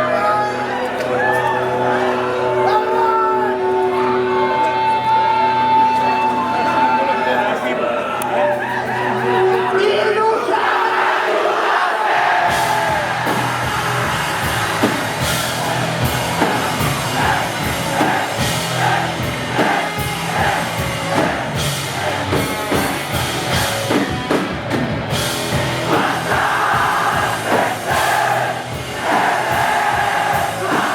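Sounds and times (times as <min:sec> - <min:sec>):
drums and bass beat: 0:12.2 - 0:30.9
live rock band playing: 0:12.4 - 0:30.9.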